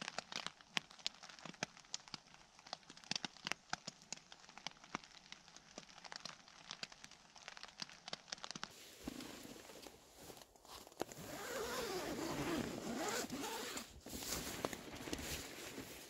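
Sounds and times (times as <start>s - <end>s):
raindrops tapping on tent: 0.0s - 16.0s
soft rustle: 8.6s - 16.0s.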